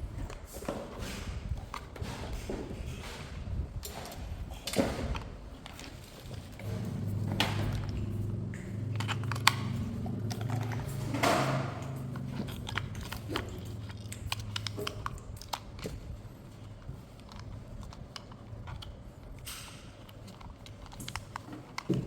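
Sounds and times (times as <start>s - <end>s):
plastic parts clicking: 3.8s - 22.0s
packaging rustle: 4.1s - 22.0s
low hum: 6.4s - 15.2s.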